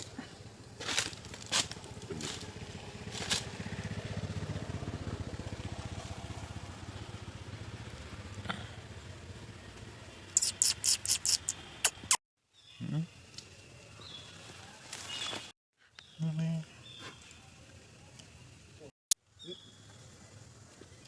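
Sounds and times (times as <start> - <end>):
small engine running: 0.9 - 9.0.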